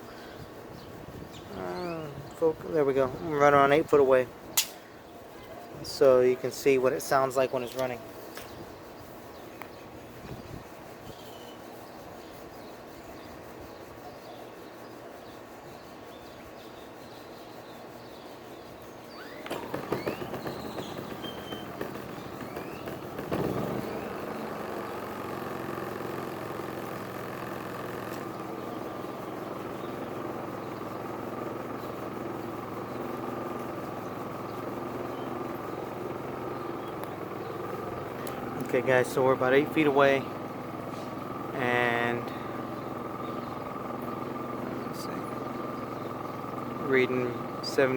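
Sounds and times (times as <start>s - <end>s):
generator running: 18.7s - 47.9s.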